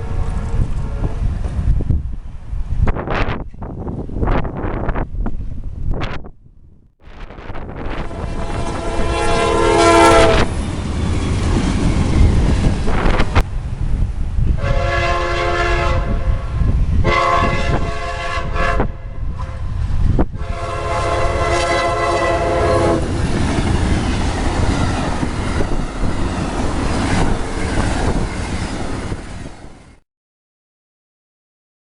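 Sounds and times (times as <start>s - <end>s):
train horn blasts: 0.0s - 1.3s, 7.8s - 10.6s, 14.6s - 19.7s, 20.4s - 23.2s
train passing rumble and clatter: 0.0s - 6.4s, 7.1s - 30.0s.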